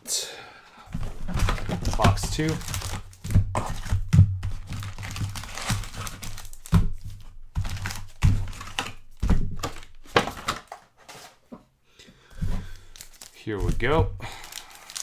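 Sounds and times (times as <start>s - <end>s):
plastic and foil crinkling: 0.9s - 11.5s, 12.4s - 15.0s
cardboard knocking on table: 1.0s - 6.0s.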